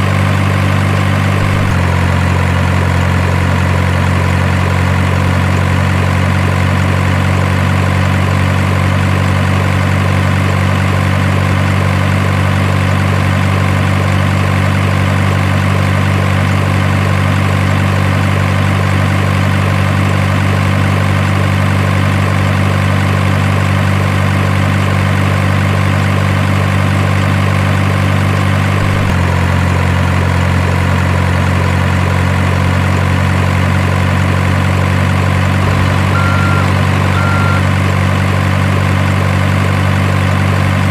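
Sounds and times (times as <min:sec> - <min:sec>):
diesel truck engine idling: 0:00.0 - 0:40.9.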